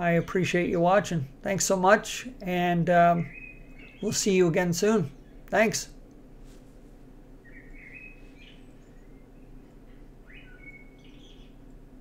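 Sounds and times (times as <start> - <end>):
steady low hum: 0.0 - 12.0
bird chirps: 3.2 - 4.3, 7.4 - 11.8.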